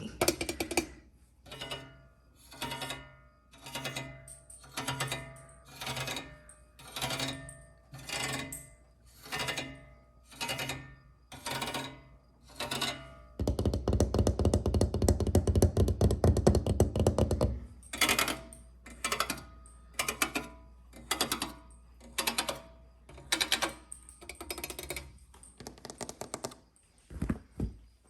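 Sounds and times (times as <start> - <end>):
tapping and scratching on object: 0.1 - 1.8, 22.1 - 26.7.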